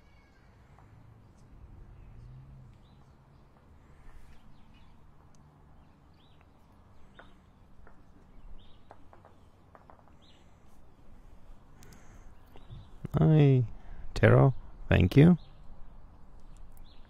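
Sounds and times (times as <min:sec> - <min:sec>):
faint clicks: 0:11.8 - 0:12.7
bird chirps: 0:11.9 - 0:13.1.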